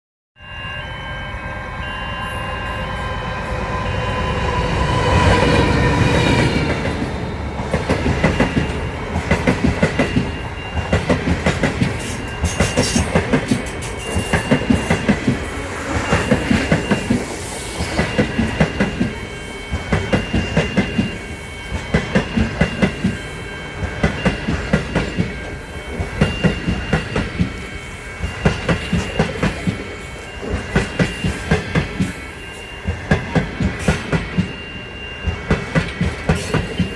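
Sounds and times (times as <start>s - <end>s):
train wheels clattering over rails: 4.7s - 23.2s, 28.2s - 32.2s, 32.8s - 34.6s, 35.2s - 36.9s
steady pitched tone: 13.9s - 20.0s.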